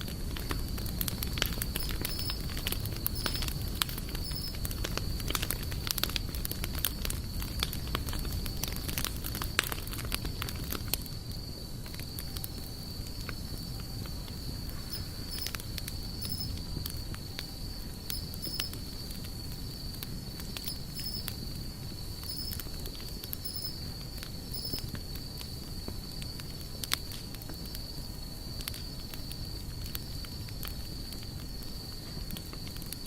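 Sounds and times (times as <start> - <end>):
campfire crackling and popping: 0.0 - 33.0
insect trill: 0.0 - 33.0
small repeated chirps: 1.6 - 4.6, 14.8 - 15.6, 16.2 - 16.6, 18.1 - 18.8, 20.6 - 21.3, 22.2 - 22.6, 23.4 - 23.9, 24.5 - 24.8.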